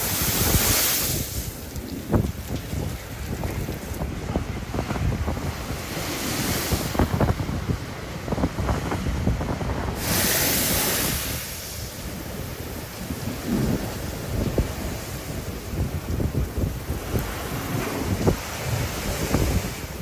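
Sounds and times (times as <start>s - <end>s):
waves breaking on sea wall: 0.0s - 20.0s
wind buffeting microphone: 0.0s - 20.0s.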